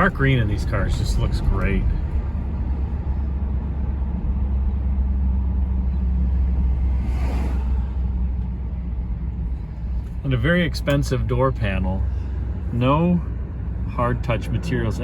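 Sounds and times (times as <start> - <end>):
car interior engine rumble: 0.0 - 15.0
brief rushing hiss: 7.0 - 8.0.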